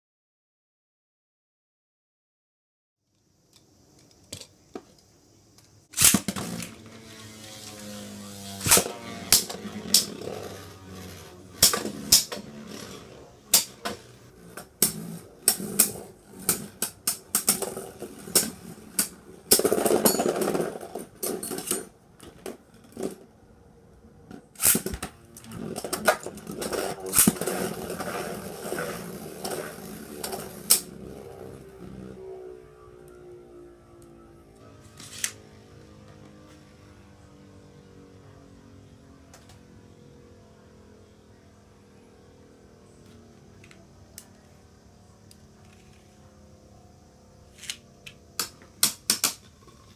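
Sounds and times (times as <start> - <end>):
spinning top launch crack: 5.9 - 21.8, 24.6 - 31.0
spinning tops whirring: 6.0 - 21.9, 24.6 - 31.7
spinning tops clacking: 8.5 - 21.8, 25.8 - 31.0.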